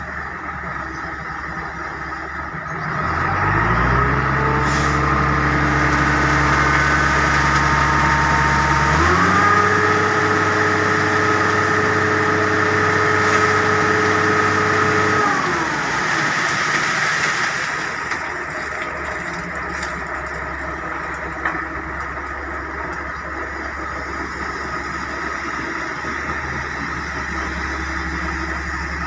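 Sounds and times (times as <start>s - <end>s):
diesel engine revving: 0.0s - 29.0s.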